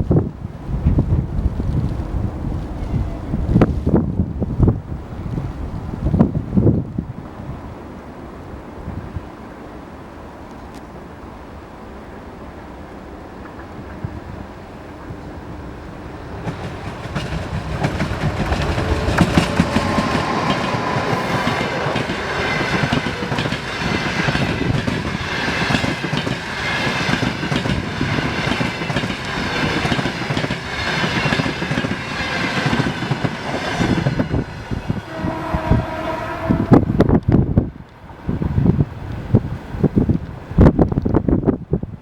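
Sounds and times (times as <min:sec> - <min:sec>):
train wheels clattering over rails: 0:16.3 - 0:35.9.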